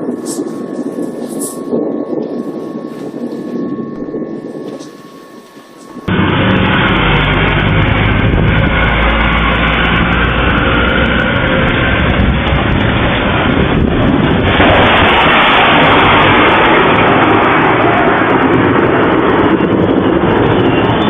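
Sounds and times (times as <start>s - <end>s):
loud rushing noise with deep rumble: 5.9s - 21.0s.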